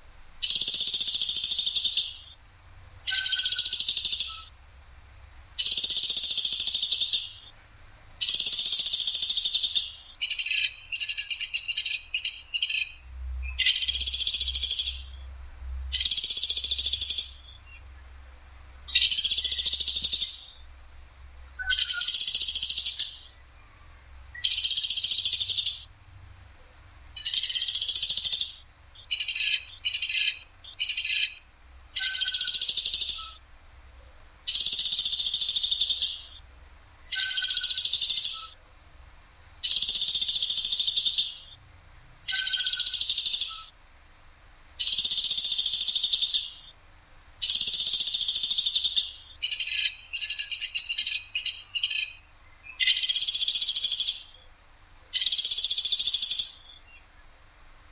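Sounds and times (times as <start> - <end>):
woodpecker rattling calls: 0.2 - 2.4, 3.0 - 4.6, 5.6 - 7.6, 8.2 - 15.2, 15.9 - 17.8, 18.9 - 20.7, 21.5 - 23.4, 24.4 - 25.9, 27.2 - 33.4, 34.2 - 36.4, 37.0 - 38.6, 39.4 - 41.6, 42.2 - 43.8, 44.5 - 54.4, 55.1 - 57.0.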